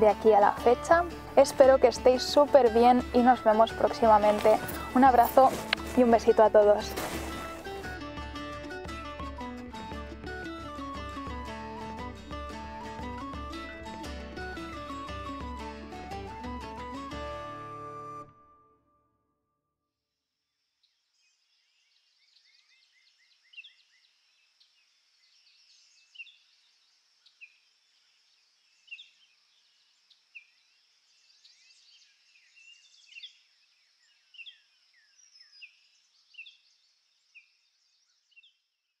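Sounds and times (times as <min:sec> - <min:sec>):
small birds chirping: 0:20.8 - 0:39.0.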